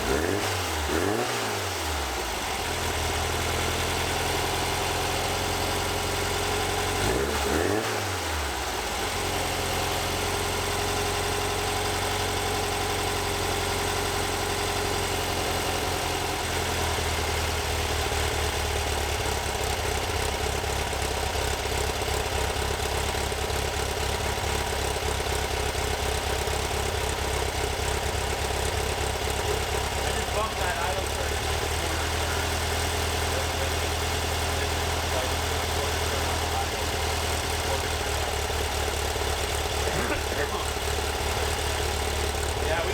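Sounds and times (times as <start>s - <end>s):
engine idling: 0.0s - 42.9s.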